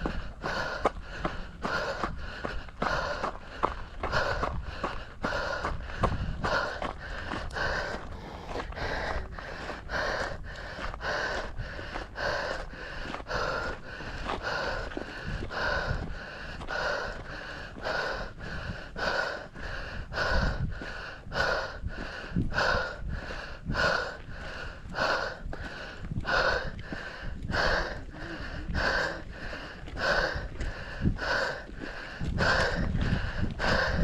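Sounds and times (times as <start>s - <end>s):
person breathing hard: 0.0s - 34.0s
low rumbling: 5.3s - 12.4s.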